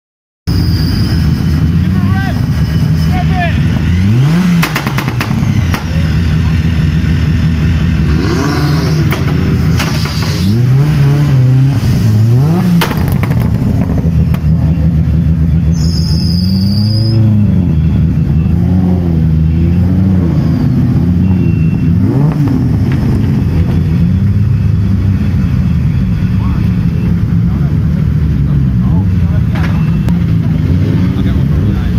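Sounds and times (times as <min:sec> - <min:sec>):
loud car engines revving: 0:00.5 - 0:31.9
high chirp: 0:15.7 - 0:18.7.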